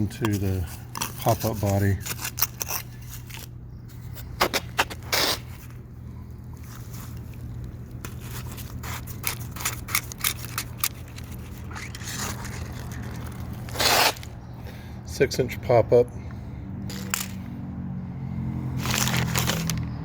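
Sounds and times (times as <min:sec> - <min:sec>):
hands scraping wet soil: 0:00.0 - 0:03.5, 0:06.6 - 0:14.3
steady low hum: 0:00.0 - 0:19.7.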